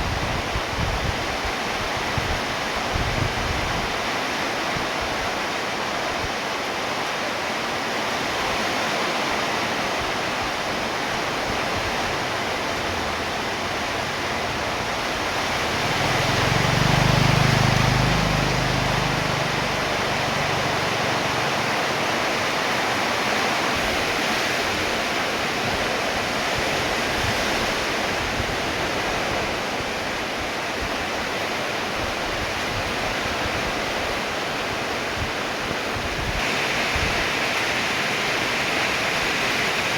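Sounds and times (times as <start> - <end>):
rain falling: 9.2 - 24.3, 35.0 - 39.9.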